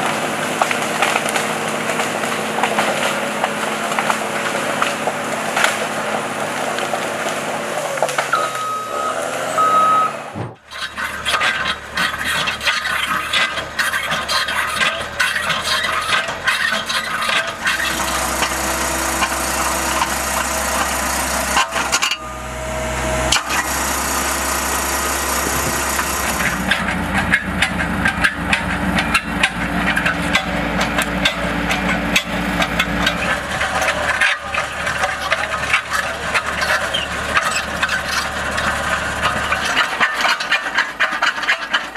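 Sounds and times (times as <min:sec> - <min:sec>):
machinery humming: 0:00.0 - 0:40.1
rattling and scraping: 0:10.4 - 0:41.9.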